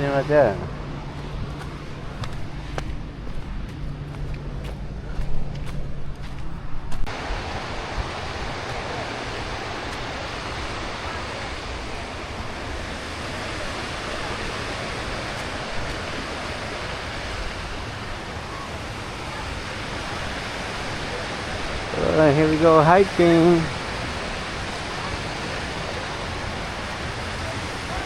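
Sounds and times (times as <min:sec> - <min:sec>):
low rumble: 0:00.6 - 0:13.0
waterfall rushing: 0:07.1 - 0:28.0.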